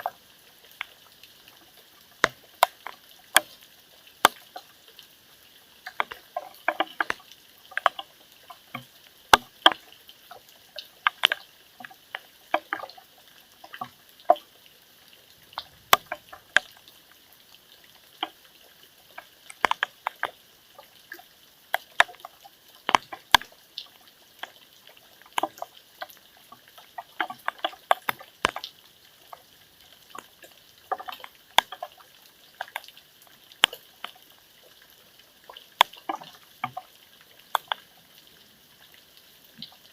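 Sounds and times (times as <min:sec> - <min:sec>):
raindrops tapping hard surface: 0:01.6 - 0:04.7, 0:05.8 - 0:13.0, 0:15.4 - 0:17.2, 0:19.1 - 0:33.0, 0:35.8 - 0:37.9.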